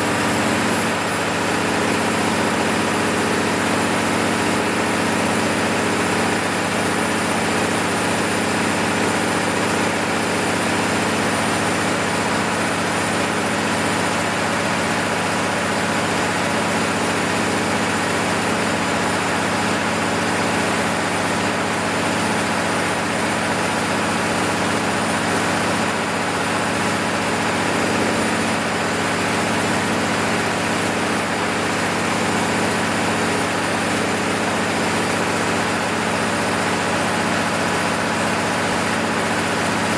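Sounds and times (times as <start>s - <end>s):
diesel generator engine running: 0.0s - 39.9s.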